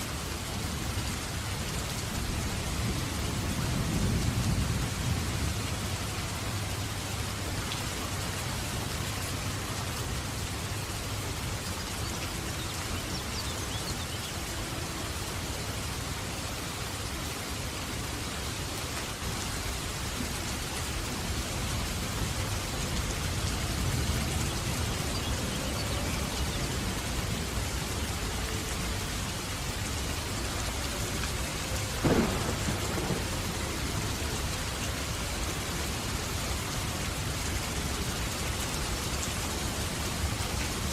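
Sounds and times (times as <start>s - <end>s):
heavy rain: 0.0s - 40.9s
low rumble of thunder: 2.2s - 6.6s, 31.9s - 35.6s
sharp thunder crack: 32.0s - 33.4s.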